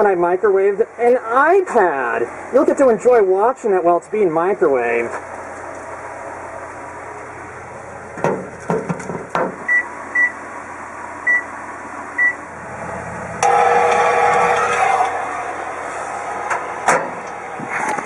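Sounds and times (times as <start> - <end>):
microwave oven humming: 0.0 - 18.0
microwave keypad beeps: 9.7 - 10.4, 11.2 - 11.5, 12.2 - 12.4.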